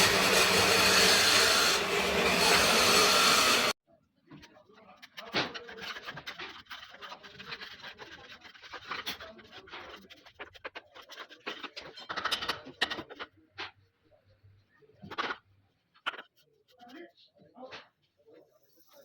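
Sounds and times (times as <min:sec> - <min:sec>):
hand tool scraping wood: 0:00.0 - 0:03.8.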